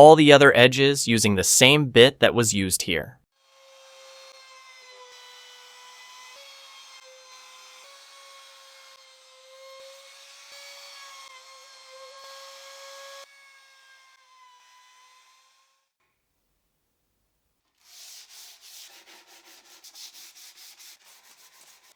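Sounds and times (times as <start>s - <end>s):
router cutting wood: 3.5s - 15.7s.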